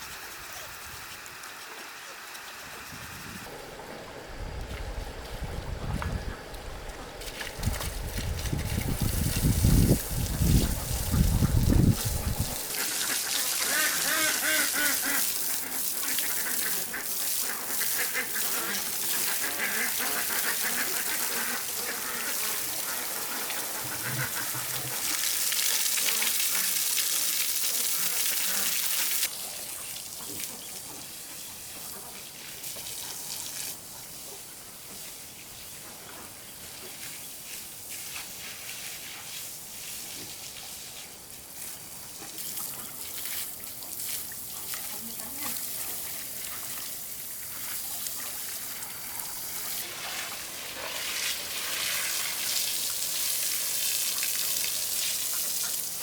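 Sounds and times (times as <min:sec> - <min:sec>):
water rushing and splashing: 0:00.0 - 0:30.5, 0:42.5 - 0:56.0
ducks quacking: 0:10.4 - 0:25.2.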